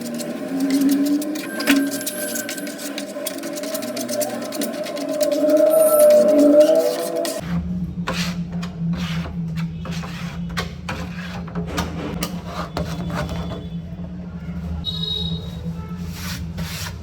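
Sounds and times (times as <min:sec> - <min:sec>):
abrasive rubbing on wood: 0:00.0 - 0:07.5.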